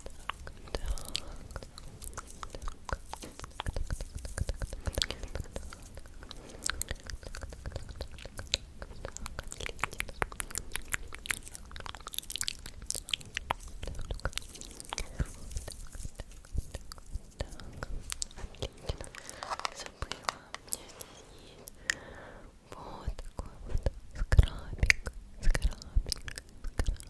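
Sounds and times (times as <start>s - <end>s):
wet mouth clicks and smacks: 0.0s - 20.9s, 23.1s - 27.0s.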